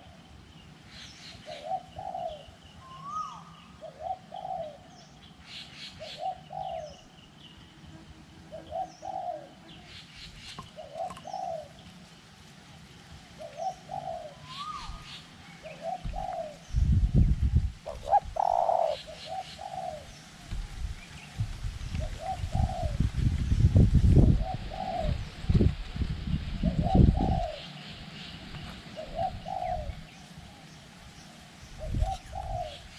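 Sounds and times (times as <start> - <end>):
dove cooing: 1.4 - 5.0, 6.0 - 7.1, 8.5 - 9.9, 10.5 - 11.8, 13.4 - 16.7, 17.8 - 20.1, 22.0 - 23.1, 24.2 - 25.4, 26.6 - 27.8, 28.5 - 30.2, 31.8 - 32.9
wind rumbling on microphone: 15.8 - 30.6, 31.6 - 32.9.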